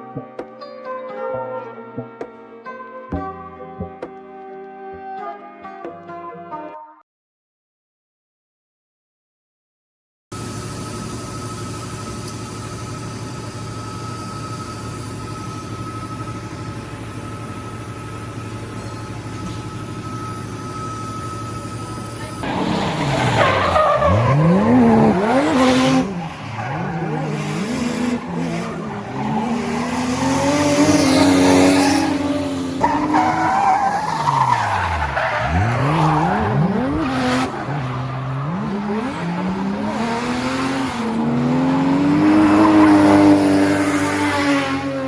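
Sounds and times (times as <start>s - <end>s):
tyres squealing and skidding: 19.2s - 45.0s
car engine revving hard: 22.2s - 45.0s.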